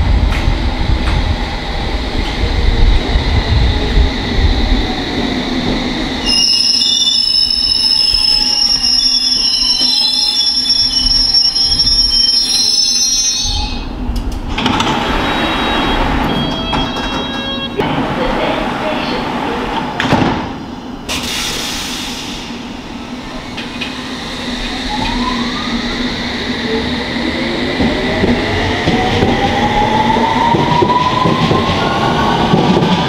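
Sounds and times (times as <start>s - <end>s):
train rumbling: 0.0s - 33.0s
high-pitched brake squeal: 6.2s - 13.9s, 15.2s - 17.8s.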